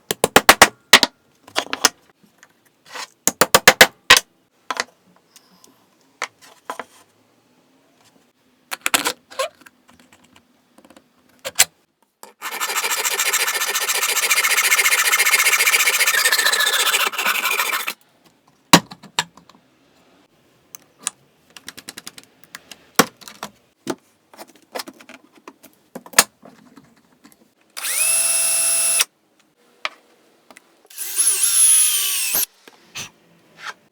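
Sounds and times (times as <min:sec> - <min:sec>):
electric drill spinning: 0:12.4 - 0:18.0, 0:27.8 - 0:29.1, 0:30.9 - 0:32.5
power tool cutting wood: 0:12.4 - 0:18.0, 0:27.8 - 0:29.1, 0:30.9 - 0:32.5.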